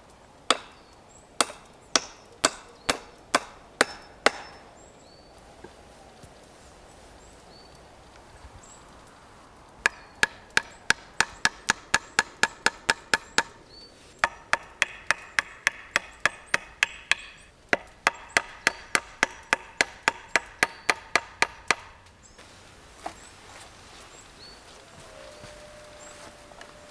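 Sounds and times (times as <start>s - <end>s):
wood being chopped: 0.5s - 4.7s, 9.8s - 13.6s, 14.2s - 22.1s.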